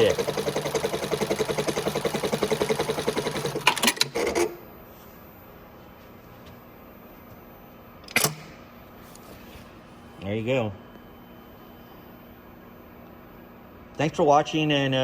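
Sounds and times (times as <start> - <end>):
sewing machine stitching: 0.0 - 4.4.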